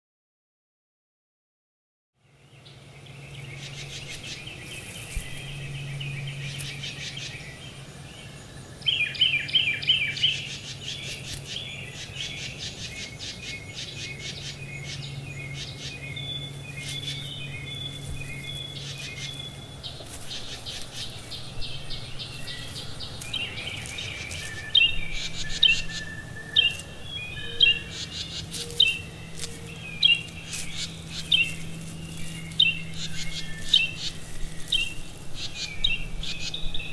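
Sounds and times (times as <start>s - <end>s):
birds chirping: 2.2s - 36.9s
low hum: 2.2s - 36.9s.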